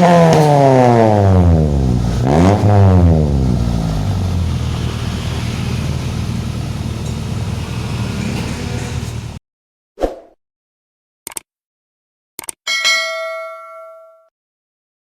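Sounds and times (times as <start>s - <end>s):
car engine revving and idling: 0.0s - 9.4s.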